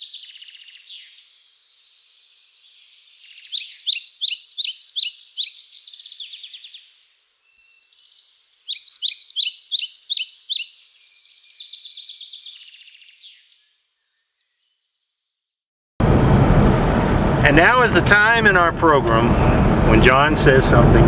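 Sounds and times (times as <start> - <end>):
songbird singing: 0.0 - 15.4.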